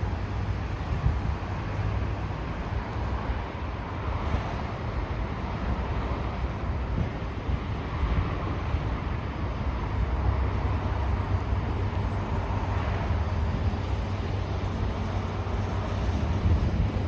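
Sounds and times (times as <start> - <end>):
tram wheels rumbling on rails: 9.8 - 17.0.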